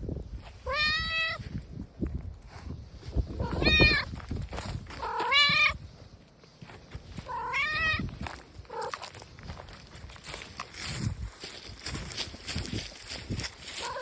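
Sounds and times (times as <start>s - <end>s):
cat meowing: 0.6s - 1.4s, 3.4s - 4.1s, 5.0s - 5.8s, 7.2s - 8.0s.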